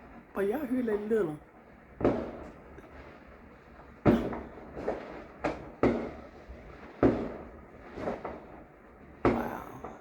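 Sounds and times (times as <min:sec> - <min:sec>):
fireworks bangs: 0:02.0 - 0:03.2, 0:04.0 - 0:10.0.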